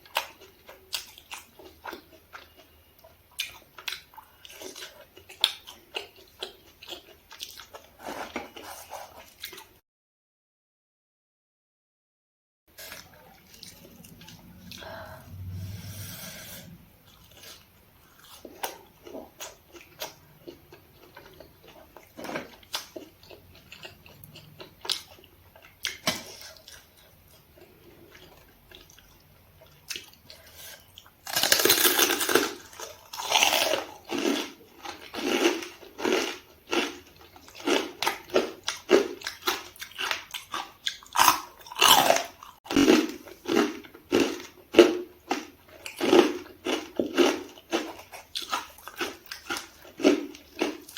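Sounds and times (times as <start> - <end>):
rhythmic chewing: 0.0 - 9.8, 12.8 - 16.0, 16.7 - 50.9
crunchy bite of fried food: 29.9 - 50.9.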